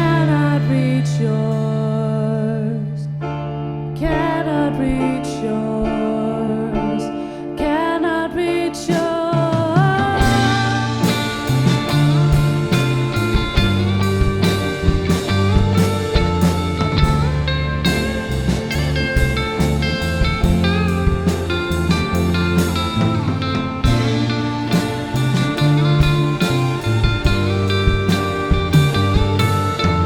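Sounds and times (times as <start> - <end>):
rock band playing: 0.0 - 1.6, 8.9 - 30.0
drums: 0.0 - 2.2, 4.0 - 30.0
gliding lead melody: 9.8 - 30.0.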